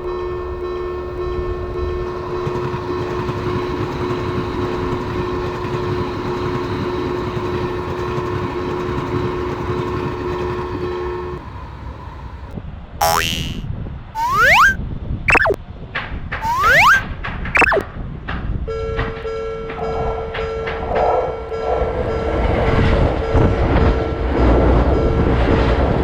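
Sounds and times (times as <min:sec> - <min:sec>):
two-note crossing tone: 0:13.0 - 0:13.6, 0:14.2 - 0:15.6, 0:16.4 - 0:17.0, 0:17.6 - 0:17.8.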